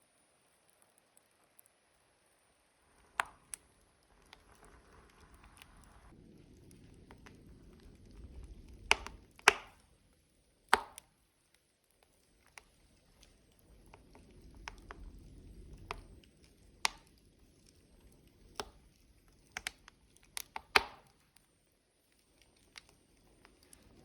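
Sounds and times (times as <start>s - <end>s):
logs crackling and popping: 0.0s - 24.0s
low rush of flame: 2.8s - 11.2s, 12.1s - 20.6s.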